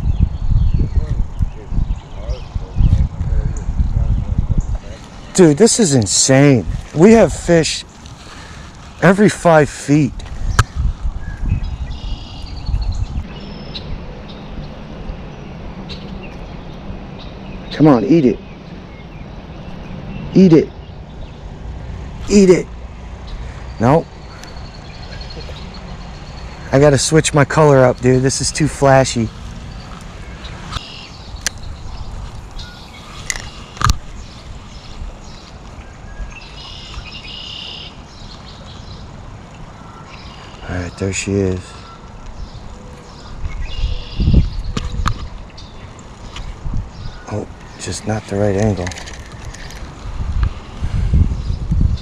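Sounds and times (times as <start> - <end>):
wind on microphone: 0.0 - 9.4, 10.1 - 17.7, 28.7 - 37.2, 41.8 - 52.0
high chirping bird call: 7.0 - 21.5, 22.2 - 49.8
faint high bird chirps: 11.2 - 14.8, 29.8 - 32.0, 32.6 - 39.1, 41.7 - 47.9.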